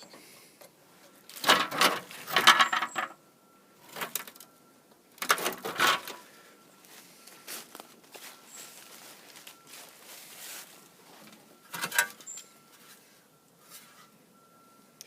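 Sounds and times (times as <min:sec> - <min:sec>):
metal clinking and rattling: 0:01.4 - 0:03.2.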